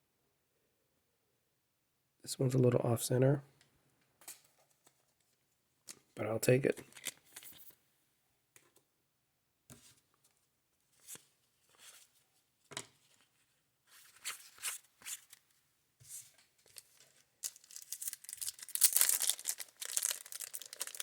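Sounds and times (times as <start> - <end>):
cards being flipped through: 6.7 - 7.7, 14.0 - 15.4, 16.1 - 21.0.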